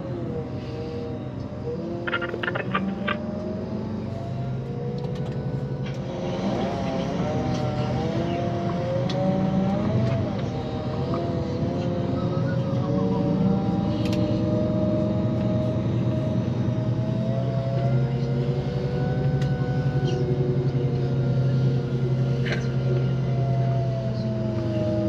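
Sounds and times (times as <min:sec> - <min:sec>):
coach engine running: 0:02.1 - 0:03.2.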